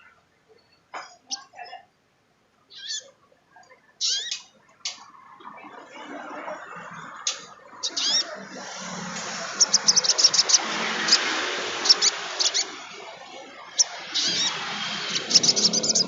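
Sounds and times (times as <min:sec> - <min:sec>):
songbird high chattering chirps: 0:02.7 - 0:03.1, 0:04.0 - 0:04.5, 0:07.2 - 0:13.0, 0:13.6 - 0:16.0.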